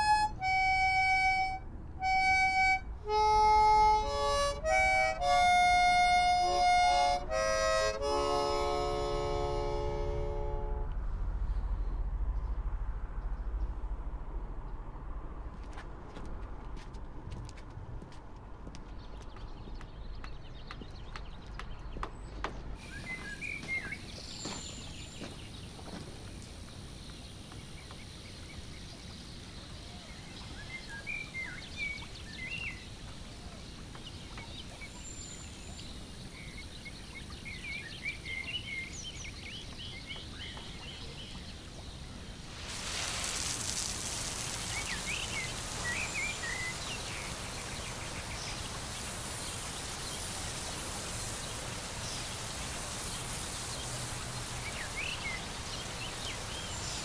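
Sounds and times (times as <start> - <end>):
small birds chirping: 18.5 - 57.0
steady hiss: 22.8 - 57.0.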